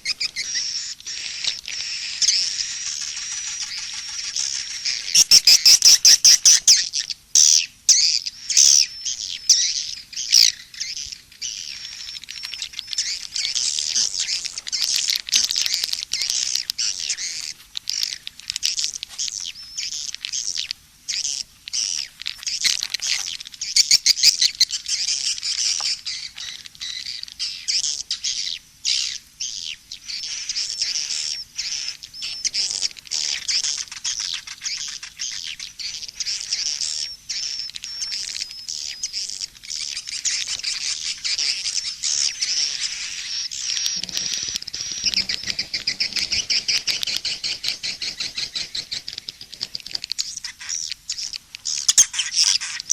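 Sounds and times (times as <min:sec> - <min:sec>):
swiftlets chirping and trilling: 0:00.0 - 0:06.8, 0:30.1 - 0:52.9.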